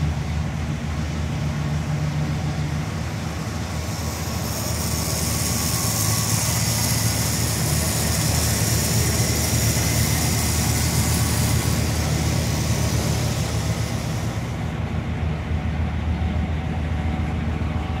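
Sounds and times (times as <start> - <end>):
high hiss: 0.0 - 14.9.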